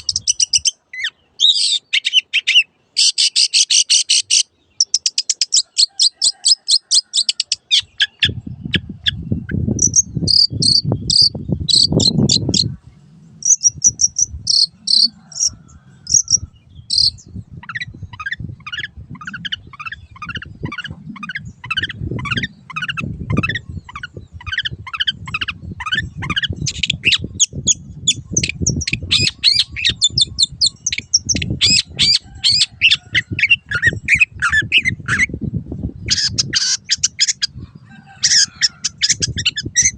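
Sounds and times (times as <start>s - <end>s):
shrike singing: 6.8s - 35.4s
low uneven rumble: 12.6s - 24.5s.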